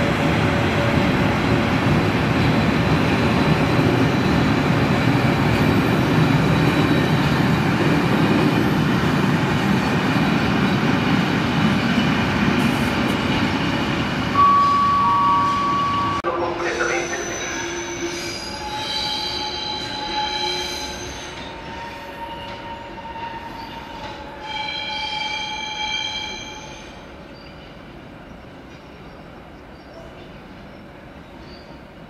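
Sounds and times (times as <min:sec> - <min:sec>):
freight train wheels rumbling: 0:00.0 - 0:32.0
high-pitched wheel squeal: 0:17.0 - 0:27.0.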